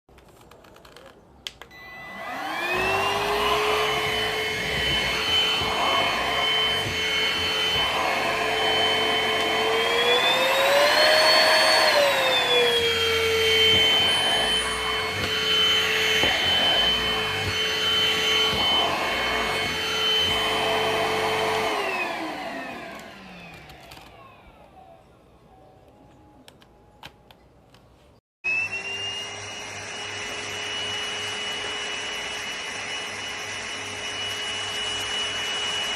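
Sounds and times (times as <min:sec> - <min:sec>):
vacuum cleaner motor whine: 0:01.6 - 0:26.2, 0:28.4 - 0:35.9.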